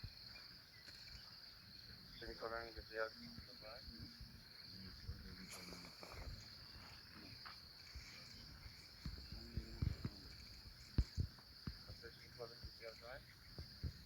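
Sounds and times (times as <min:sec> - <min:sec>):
crickets trilling: 0:00.0 - 0:14.0
low knocks and bumps: 0:08.5 - 0:12.8.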